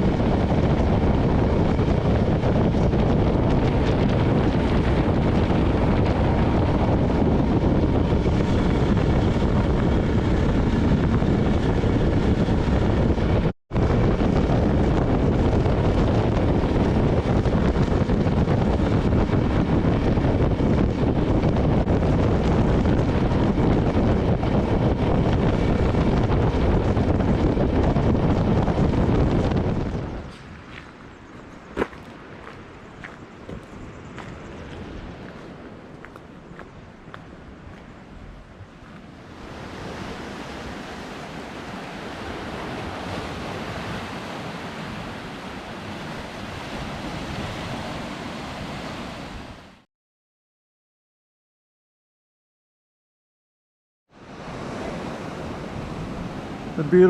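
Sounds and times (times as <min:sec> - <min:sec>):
wind rushing over microphone: 0:00.0 - 0:49.8, 0:54.1 - 0:57.0.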